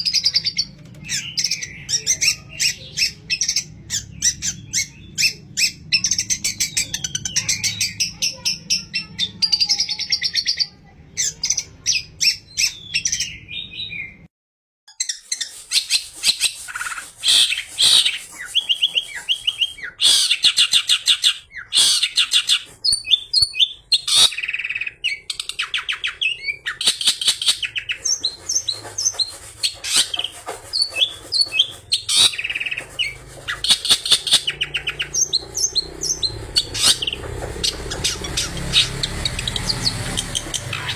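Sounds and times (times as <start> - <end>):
shrike singing varied song: 14.9 - 40.9.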